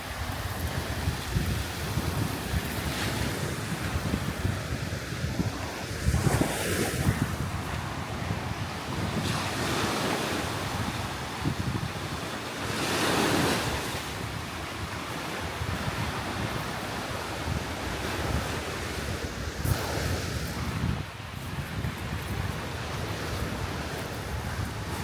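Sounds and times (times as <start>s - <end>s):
sea surf washing onto beach: 0.0s - 25.0s
wind buffeting microphone: 0.0s - 25.0s.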